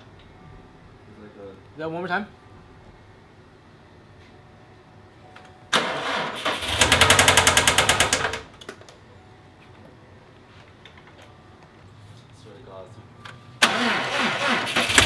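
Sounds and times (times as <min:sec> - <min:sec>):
car engine cranking and starting: 0:05.7 - 0:08.5, 0:13.6 - 0:15.0.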